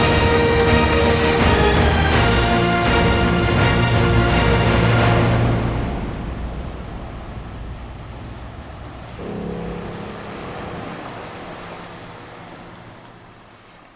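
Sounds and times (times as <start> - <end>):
water washing against harbour: 0.0 - 13.9
low steady hum: 5.8 - 13.9.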